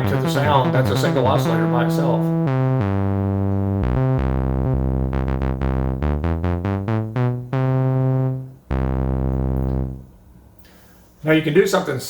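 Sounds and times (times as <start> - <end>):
synthesizer notes with pitch bend: 0.0 - 10.2.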